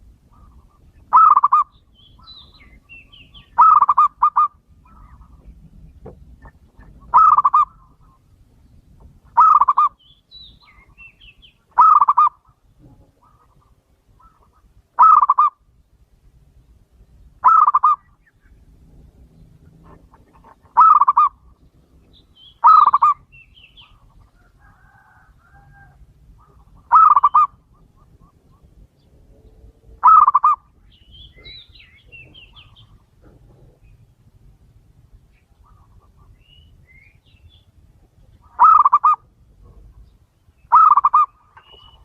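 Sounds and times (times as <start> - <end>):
dove cooing: 0.0 - 5.6, 6.4 - 8.2, 9.3 - 10.0, 11.7 - 15.6, 17.4 - 18.2, 19.6 - 21.6, 22.6 - 30.8, 38.4 - 40.0, 40.7 - 42.0
small birds chirping: 0.3 - 42.0.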